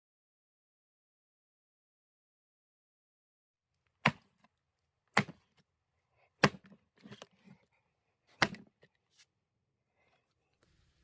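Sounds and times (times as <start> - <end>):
axe chopping wood: 4.0 - 4.5, 5.1 - 5.6, 6.4 - 6.8, 8.4 - 8.7.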